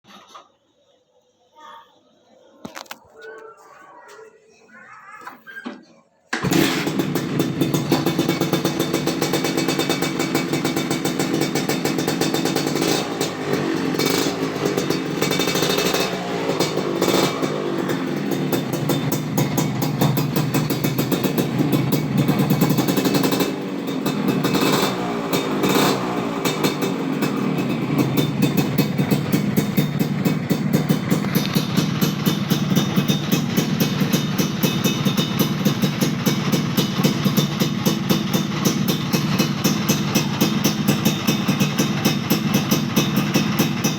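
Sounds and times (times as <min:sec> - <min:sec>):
motorcycle engine revving and idling: 0:06.4 - 0:43.9.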